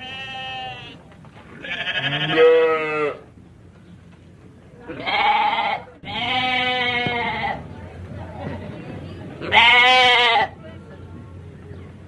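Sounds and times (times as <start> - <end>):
animal bleating: 0.0 - 1.0, 1.6 - 3.2, 4.9 - 7.6, 9.4 - 10.5.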